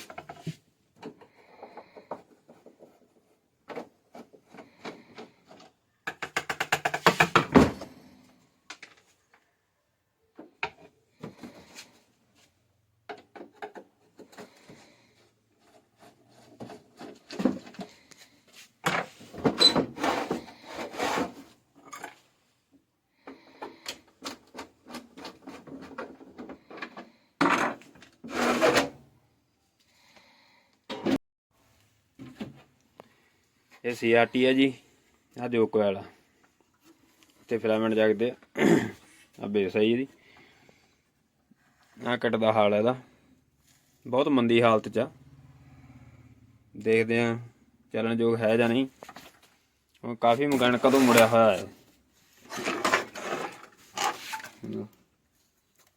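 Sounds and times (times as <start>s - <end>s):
scraping on television: 19.4s - 21.6s, 28.2s - 29.0s, 50.5s - 51.8s, 52.4s - 54.6s.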